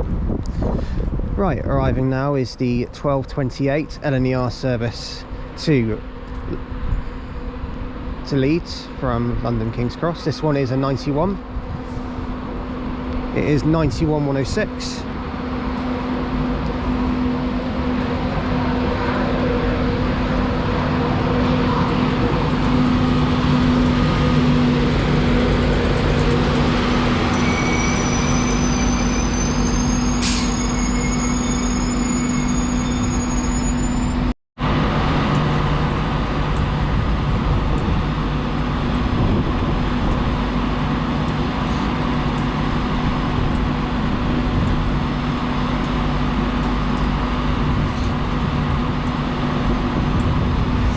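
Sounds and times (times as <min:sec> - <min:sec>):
electric locomotive humming: 0:00.0 - 0:50.9
thin high whine rising: 0:10.5 - 0:34.3.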